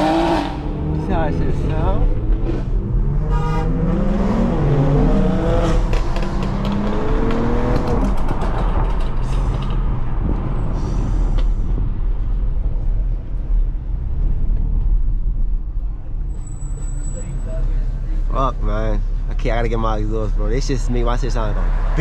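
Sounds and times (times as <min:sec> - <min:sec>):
car engine accelerating: 0:00.0 - 0:18.0
road noise: 0:00.0 - 0:22.0
exhaust cracks: 0:04.5 - 0:16.4.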